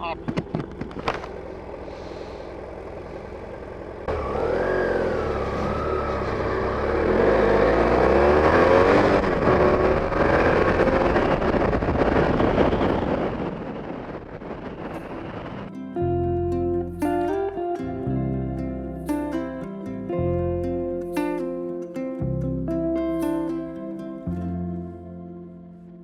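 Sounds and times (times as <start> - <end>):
motorcycle engine accelerating: 0.0 - 15.7.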